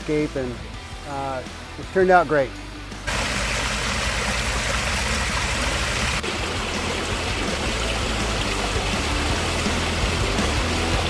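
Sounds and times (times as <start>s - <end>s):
water running down rock cascades: 3.1s - 11.0s.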